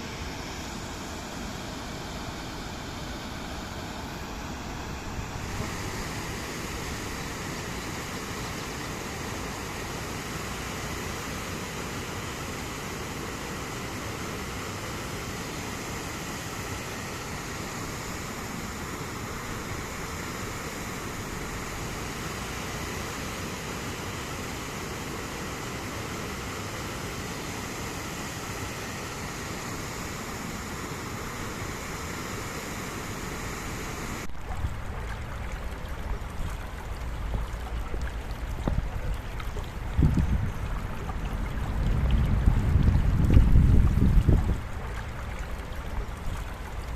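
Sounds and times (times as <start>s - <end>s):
river rushing over rocks: 0.0s - 46.9s
deep water rumble: 34.3s - 46.9s.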